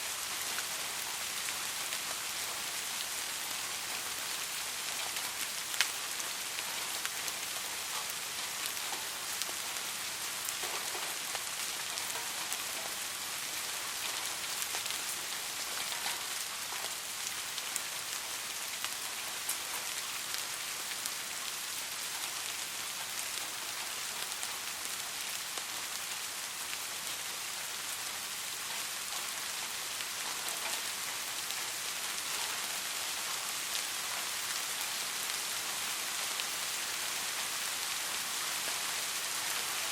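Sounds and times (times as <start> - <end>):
steady rain hiss: 0.0 - 39.9
raindrop ticks: 10.4 - 13.0, 15.8 - 16.9.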